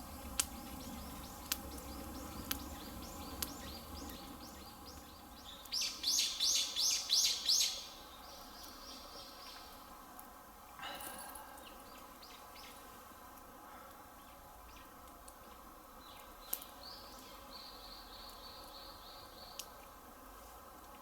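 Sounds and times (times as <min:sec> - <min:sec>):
birds chirping: 0:00.0 - 0:09.7.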